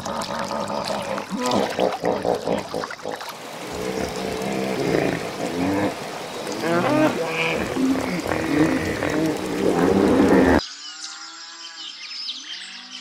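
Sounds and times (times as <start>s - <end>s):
water splashing and trickling: 0.0s - 10.6s
hippopotamuses honking: 3.4s - 10.6s.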